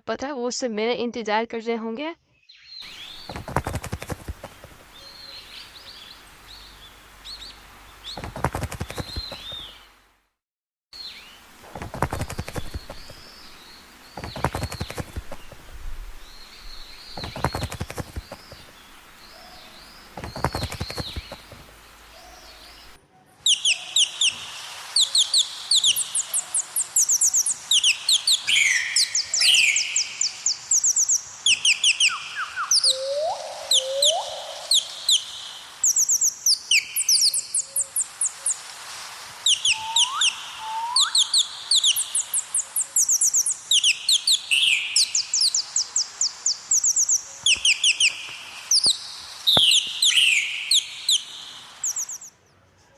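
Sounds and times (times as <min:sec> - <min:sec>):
birds chirping: 0:02.4 - 0:10.1, 0:11.0 - 0:52.9
rising whistled bird notes: 0:22.0 - 0:38.6, 0:39.4 - 0:52.4.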